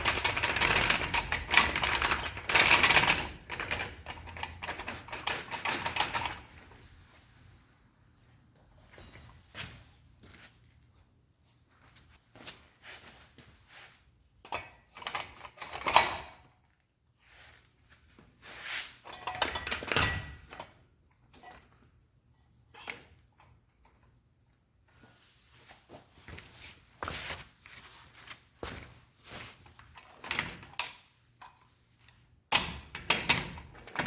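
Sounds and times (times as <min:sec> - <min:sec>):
small parts clicking and rattling: 0:00.0 - 0:06.5.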